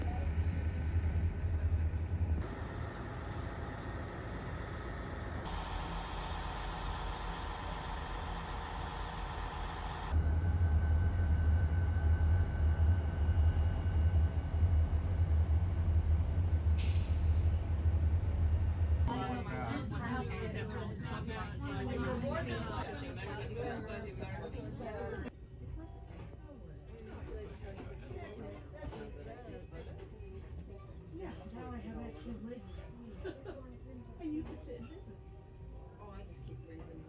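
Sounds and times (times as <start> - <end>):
train rumbling: 0.0 - 25.3.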